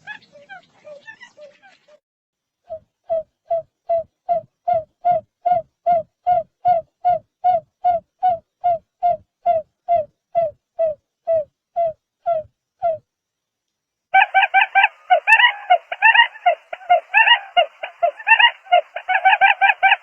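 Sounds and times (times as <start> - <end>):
bird calling in low hoots: 14.2 - 20.0.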